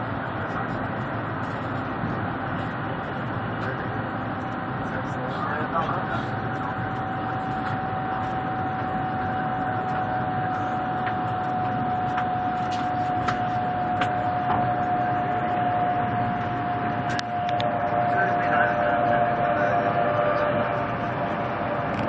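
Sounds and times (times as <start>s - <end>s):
constant whine: 0.0s - 22.0s
train rushing noise: 0.0s - 22.0s.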